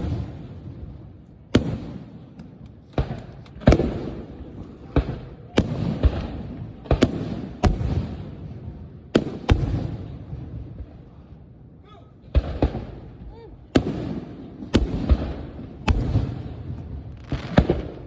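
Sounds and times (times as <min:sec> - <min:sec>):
firework shells bursting: 0:01.6 - 0:04.0.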